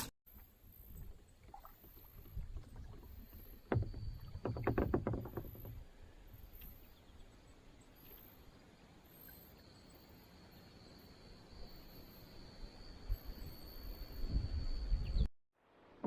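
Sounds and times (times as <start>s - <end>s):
knocks against boat hull: 3.7s - 5.8s
low wind rumble: 12.6s - 15.3s.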